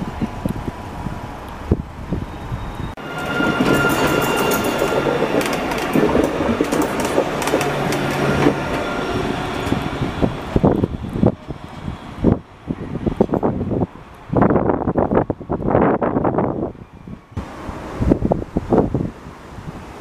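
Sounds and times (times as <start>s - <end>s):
rail vehicle passing: 0.0s - 20.0s
wheels clattering on track: 3.2s - 11.3s.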